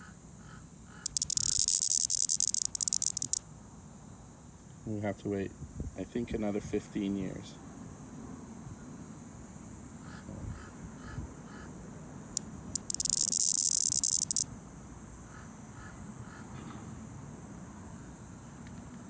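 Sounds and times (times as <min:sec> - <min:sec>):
cicada high buzzing chirp: 0:00.8 - 0:04.2, 0:11.0 - 0:15.5
cicada clicks: 0:00.9 - 0:03.5, 0:12.3 - 0:14.6.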